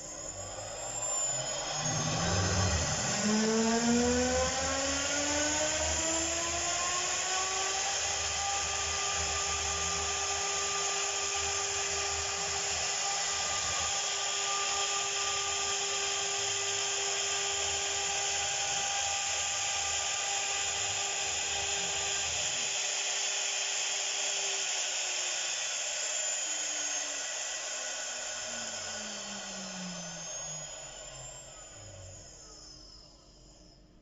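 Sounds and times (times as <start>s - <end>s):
router spindle whine: 0.0s - 34.0s.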